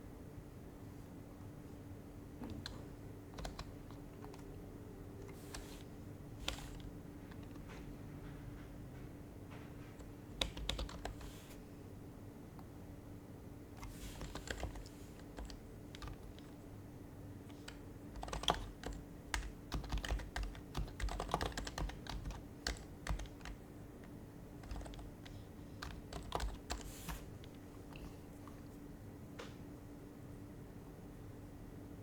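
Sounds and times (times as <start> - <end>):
soft keyboard keystrokes: 2.4 - 4.6, 5.2 - 8.7, 9.5 - 11.5, 13.8 - 16.6, 17.4 - 29.6.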